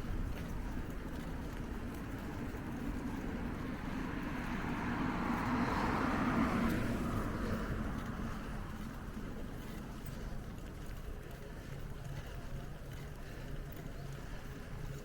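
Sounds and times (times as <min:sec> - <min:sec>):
road vehicle passing: 0:00.0 - 0:11.1.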